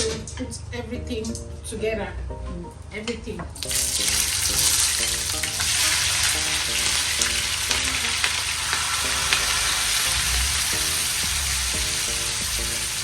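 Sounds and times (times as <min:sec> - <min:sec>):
faint music: 0:00.0 - 0:13.0
vegetables sizzling in hot oil: 0:03.6 - 0:13.0.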